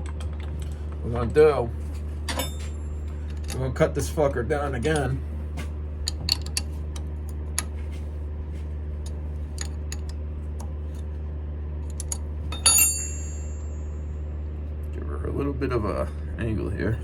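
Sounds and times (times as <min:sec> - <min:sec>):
ringing metal clink: 0:12.0 - 0:14.0.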